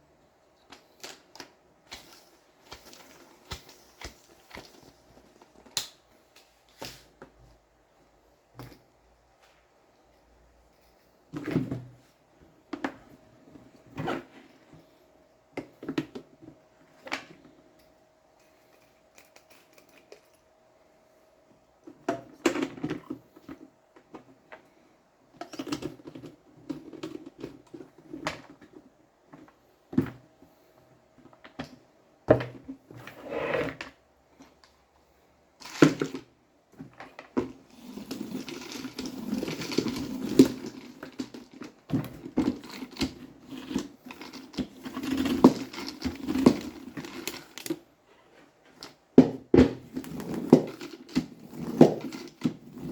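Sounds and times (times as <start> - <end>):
plastic rustling and clattering: 0.6 - 7.4, 35.6 - 52.9.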